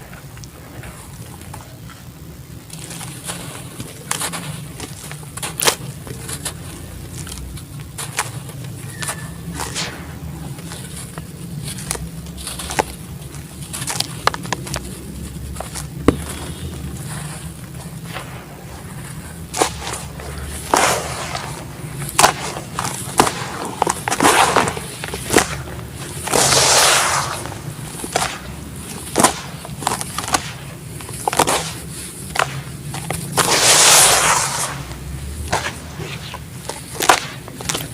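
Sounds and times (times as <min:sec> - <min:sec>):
gritty crumbling: 0:00.0 - 0:37.9
low steady hum: 0:00.0 - 0:37.9.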